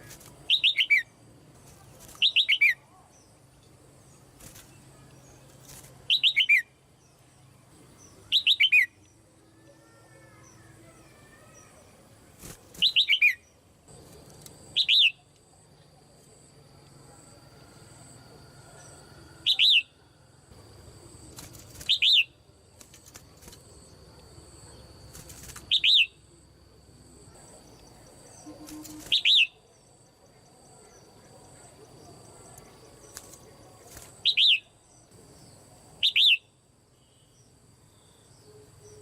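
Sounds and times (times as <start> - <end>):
bird chirping: 0.0 - 1.2, 1.8 - 12.0, 12.8 - 13.6, 14.4 - 15.9, 18.0 - 20.1, 21.5 - 22.4, 25.6 - 26.3, 27.8 - 39.0
faint high-pitched tone: 26.2 - 34.1.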